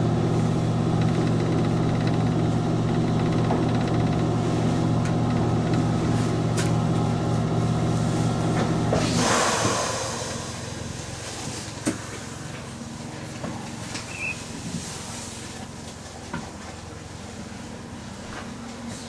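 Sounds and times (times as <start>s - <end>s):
train mechanical hum: 0.0s - 19.0s
hissing air burst: 9.0s - 11.2s.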